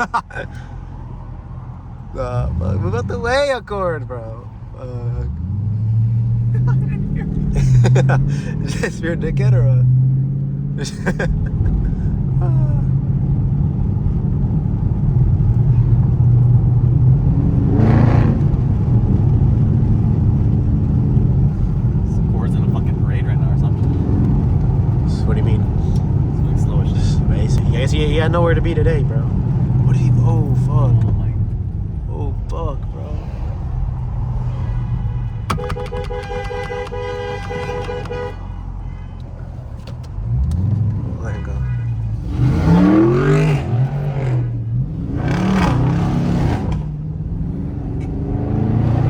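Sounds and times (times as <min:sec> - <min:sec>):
loud low car exhaust: 0:04.0 - 0:49.0
car horn beeping: 0:34.4 - 0:39.7, 0:41.2 - 0:43.4.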